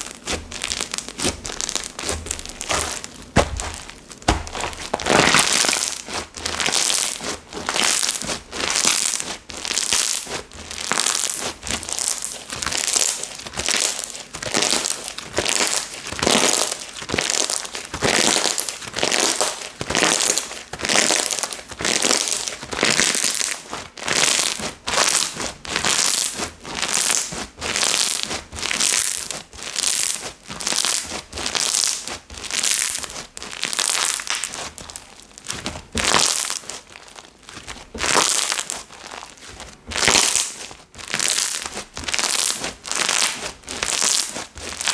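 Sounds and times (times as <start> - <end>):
slime squeezed by hand: 0.0 - 22.4.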